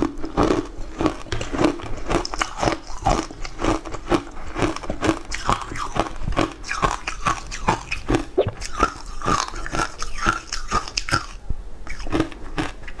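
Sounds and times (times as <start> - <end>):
crunchy food chewing: 0.0 - 13.0
wet mouth sounds: 2.2 - 13.0.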